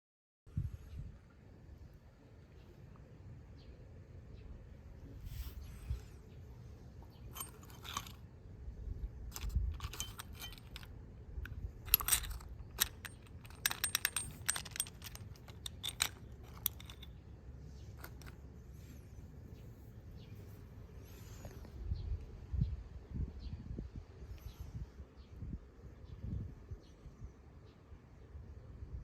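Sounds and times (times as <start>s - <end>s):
metal parts and tools clinking: 7.1s - 8.2s, 9.2s - 18.4s.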